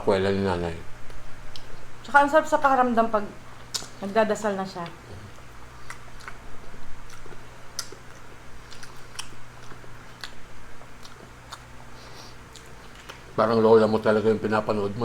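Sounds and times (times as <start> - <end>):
person chewing food: 1.1 - 1.9, 3.6 - 4.0, 4.8 - 13.4
mouth clicks and smacks: 3.7 - 4.0, 7.0 - 10.4.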